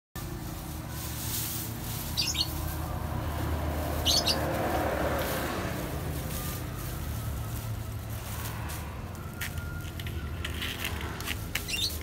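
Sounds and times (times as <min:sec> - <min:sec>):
small bird chirping: 0:02.1 - 0:02.6, 0:04.0 - 0:04.5, 0:11.6 - 0:12.0.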